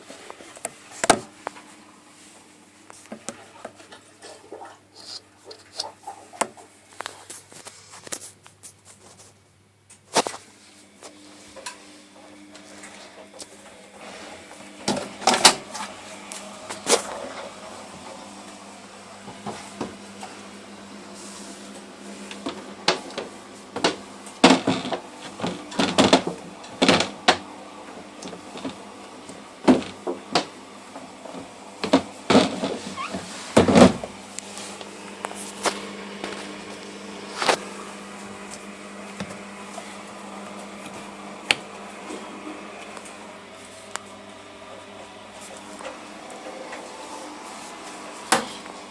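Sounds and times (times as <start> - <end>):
laundry machine humming: 10.1 - 48.9.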